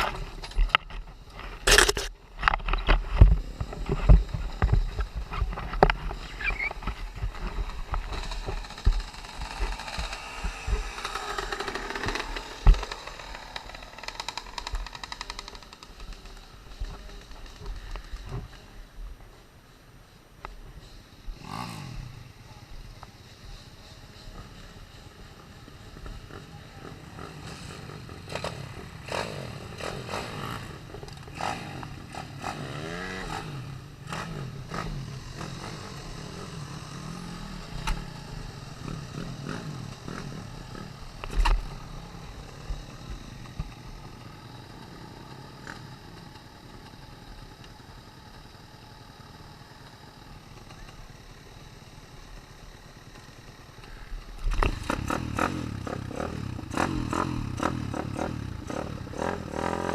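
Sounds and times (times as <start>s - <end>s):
pit bike engine revving: 0.0s - 18.2s, 21.3s - 22.4s, 24.5s - 59.9s.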